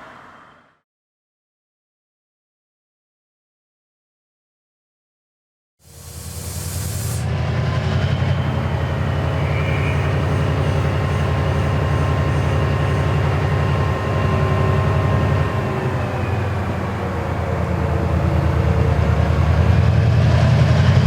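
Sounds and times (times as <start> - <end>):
high hiss: 5.9 - 7.3
diesel locomotive engine running: 5.9 - 21.0.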